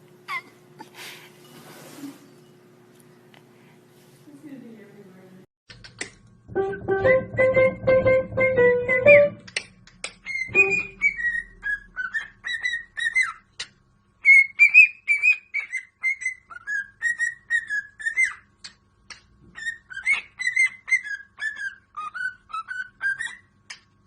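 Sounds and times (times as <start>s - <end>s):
parrot whistling: 10.2s - 13.4s, 14.2s - 18.5s, 19.6s - 23.5s.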